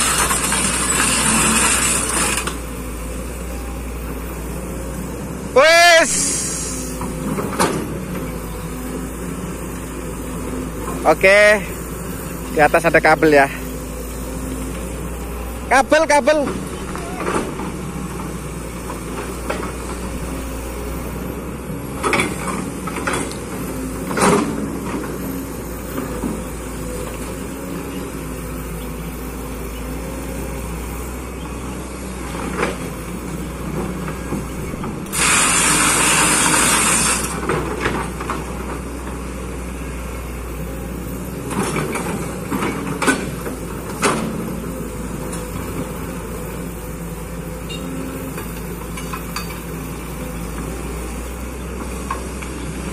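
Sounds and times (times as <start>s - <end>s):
excavator running: 0.0s - 52.9s
loud hiss: 6.0s - 7.0s, 35.1s - 37.4s.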